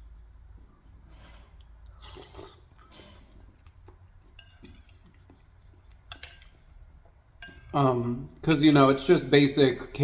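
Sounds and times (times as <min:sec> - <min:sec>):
spoon clinking against bowl: 0:04.4 - 0:05.0, 0:06.1 - 0:06.6, 0:07.4 - 0:07.8, 0:08.4 - 0:09.1.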